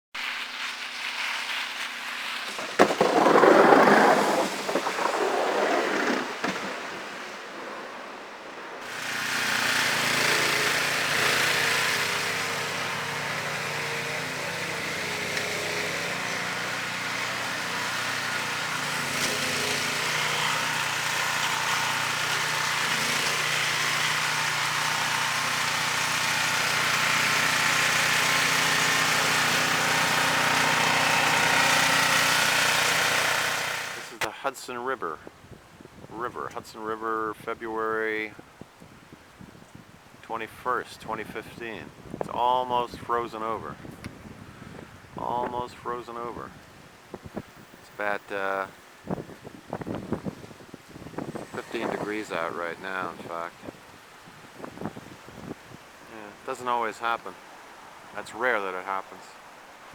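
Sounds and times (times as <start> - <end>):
wind buffeting microphone: 35.2 - 36.5, 38.4 - 40.2, 41.0 - 47.8, 49.0 - 55.9.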